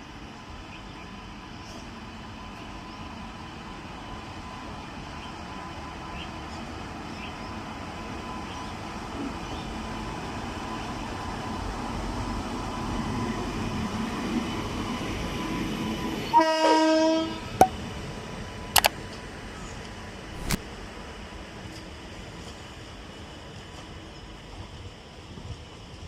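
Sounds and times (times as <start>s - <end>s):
train rumbling on rails: 0.0s - 17.4s, 18.0s - 26.0s
locomotive horn blast: 16.3s - 17.4s
sharp clicks: 20.4s - 20.6s.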